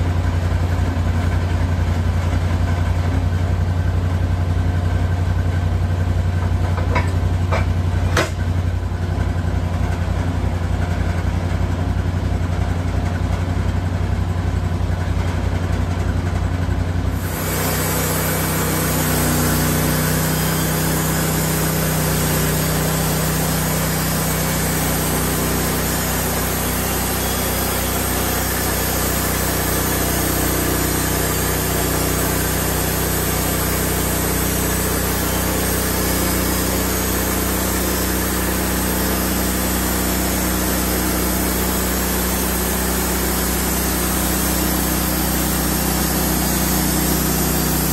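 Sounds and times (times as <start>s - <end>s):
sawmill gas engine: 0.0s - 47.9s
band saw blade cutting log: 6.8s - 8.4s, 17.1s - 47.9s.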